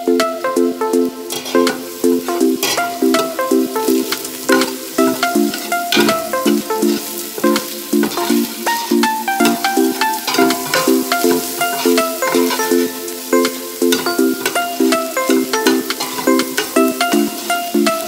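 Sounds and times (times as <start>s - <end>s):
background music of short chords: 0.0s - 18.0s
onion and garlic sizzling in oil: 1.2s - 18.0s
spoon scraping a pot: 1.3s - 13.0s, 15.6s - 17.2s.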